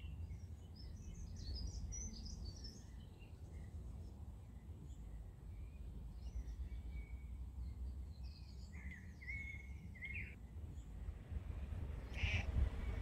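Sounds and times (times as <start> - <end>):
songbirds chirping: 0.0 - 13.0
steady low rumble: 10.3 - 13.0.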